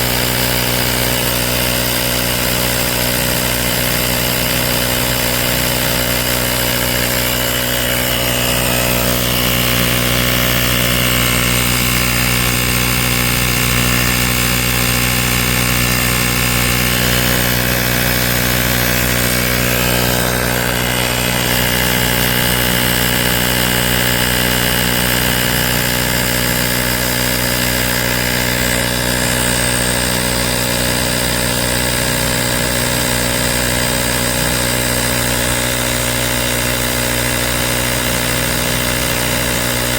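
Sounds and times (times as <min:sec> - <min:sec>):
air compressor buzzing: 0:00.0 - 0:39.9.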